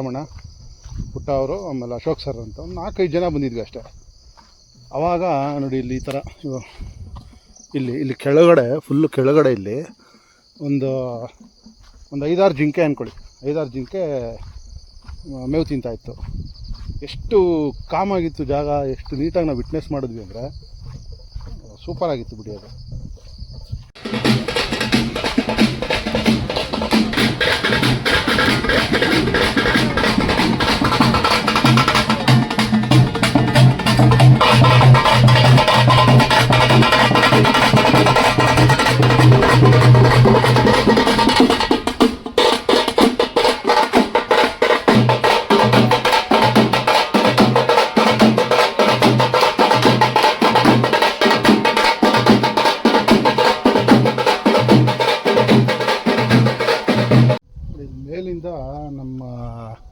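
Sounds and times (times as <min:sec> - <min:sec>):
pulsing bass line: 0:23.9 - 0:42.0, 0:44.0 - 0:47.6
music with drum beat and percussion: 0:24.0 - 0:57.4.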